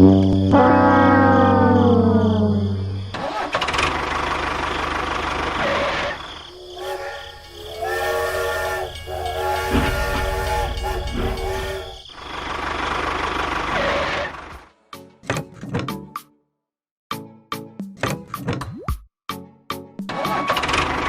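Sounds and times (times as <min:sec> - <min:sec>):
horn-like tone sliding downward: 0:00.0 - 0:03.0, 0:06.4 - 0:12.2
held horn-like tones: 0:00.0 - 0:03.1, 0:05.6 - 0:12.4.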